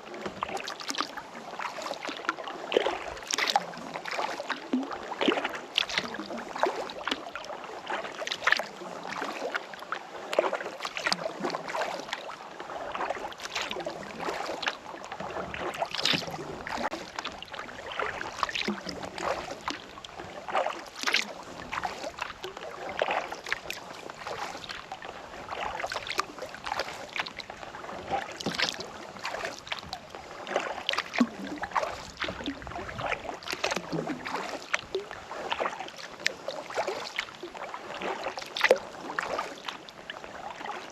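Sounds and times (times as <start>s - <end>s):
kayak paddle strokes in water: 0.0s - 40.9s
water splashes and drips: 0.0s - 40.9s.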